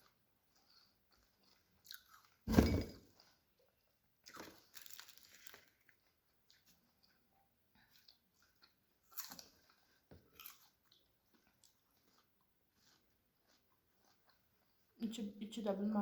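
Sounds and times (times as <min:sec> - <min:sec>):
crunchy chewing: 0:07.8 - 0:15.0.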